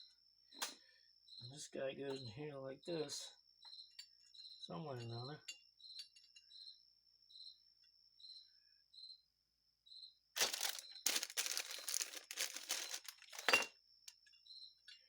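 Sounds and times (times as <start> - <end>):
cricket chirping: 0.0 - 15.0
plastic packaging crinkling: 10.4 - 13.7.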